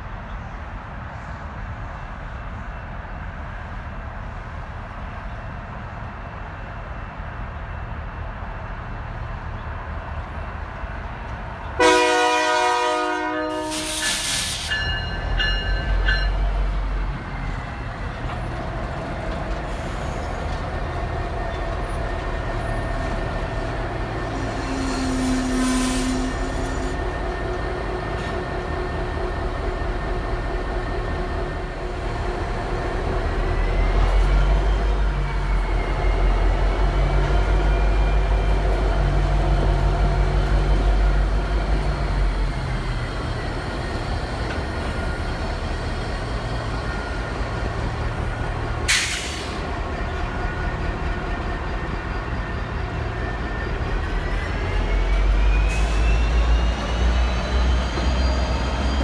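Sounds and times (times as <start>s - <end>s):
locomotive engine rumble: 8.8s - 59.0s.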